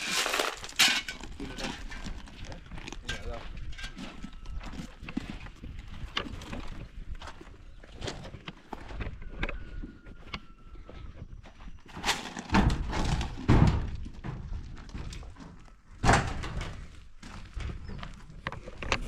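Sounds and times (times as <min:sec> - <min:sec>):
knocks and thuds: 0:12.5 - 0:14.4, 0:16.0 - 0:16.8.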